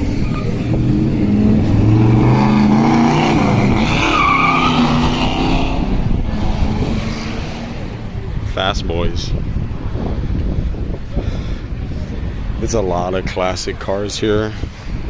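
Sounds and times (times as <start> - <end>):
car engine revving: 0.0 - 8.4.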